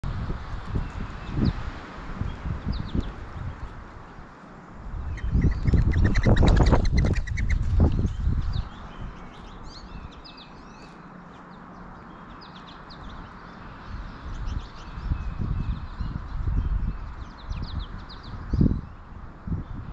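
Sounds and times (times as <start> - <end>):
bird calls: 5.0 - 19.0.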